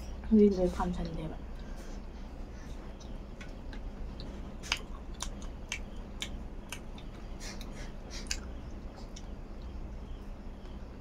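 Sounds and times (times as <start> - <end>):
person chewing food: 1.6 - 9.9.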